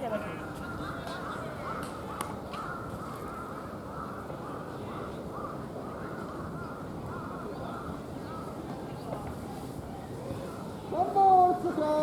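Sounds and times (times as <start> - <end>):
crows cawing: 0.3 - 8.6.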